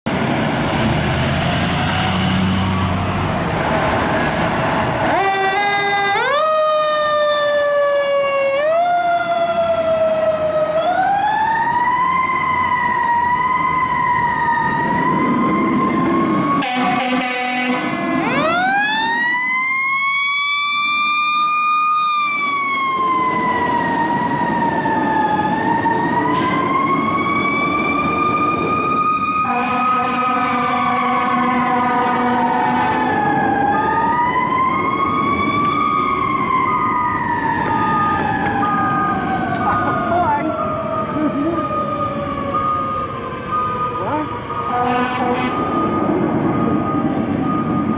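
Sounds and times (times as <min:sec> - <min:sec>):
diesel engine: 0:00.0 - 0:47.9
road noise: 0:00.0 - 0:47.9
fire engine siren wailing: 0:00.1 - 0:47.9
air horn blast: 0:16.6 - 0:18.0, 0:29.4 - 0:32.8, 0:44.7 - 0:45.7.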